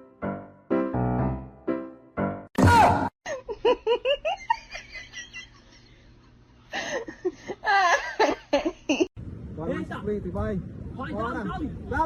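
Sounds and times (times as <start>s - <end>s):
person giggling: 3.3s - 5.8s.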